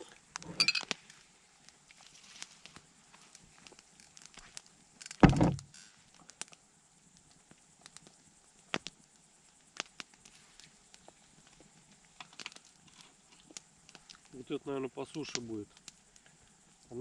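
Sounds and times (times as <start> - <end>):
campfire crackling and popping: 0.0 - 17.0
loud dull thump: 5.2 - 5.6.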